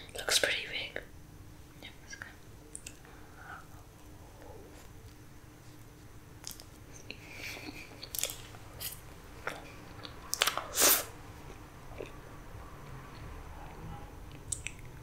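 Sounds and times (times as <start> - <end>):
soft chewing: 1.8 - 10.7, 11.4 - 12.2
wet mouth smacks and clicks: 9.5 - 10.6, 14.3 - 14.9.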